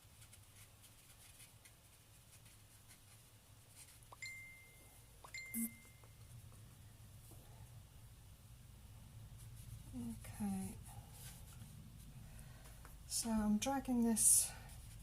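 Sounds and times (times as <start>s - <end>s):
faint room hum: 0.0s - 15.0s
short high tones: 4.2s - 6.2s.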